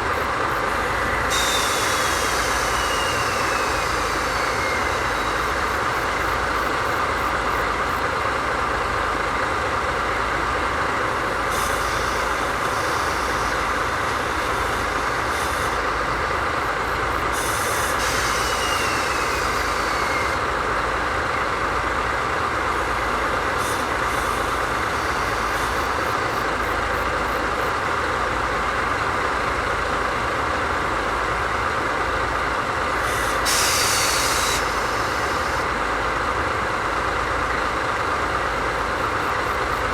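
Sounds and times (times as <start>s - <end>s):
diesel locomotive idling: 0.0s - 39.9s
compressed air hissing: 0.3s - 6.8s, 11.5s - 20.4s, 23.4s - 26.6s, 33.0s - 35.7s.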